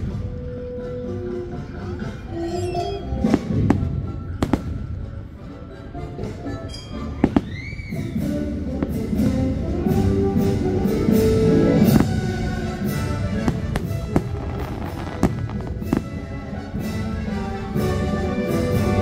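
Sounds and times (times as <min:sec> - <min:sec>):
show music: 0:00.0 - 0:19.0
fireworks bangs and crackles: 0:03.2 - 0:05.2, 0:07.2 - 0:19.0.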